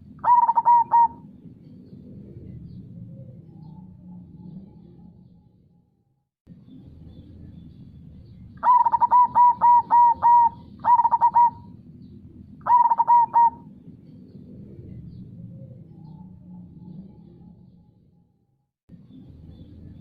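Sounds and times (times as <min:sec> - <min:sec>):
dove cooing: 0:00.0 - 0:05.0, 0:08.6 - 0:11.8, 0:12.6 - 0:13.9.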